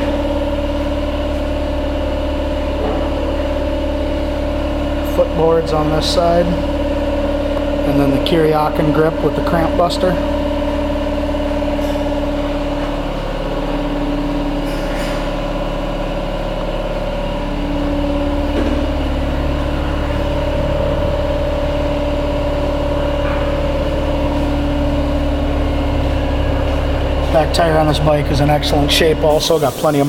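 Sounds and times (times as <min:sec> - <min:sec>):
motorcycle engine idling: 0:10.3 - 0:29.2.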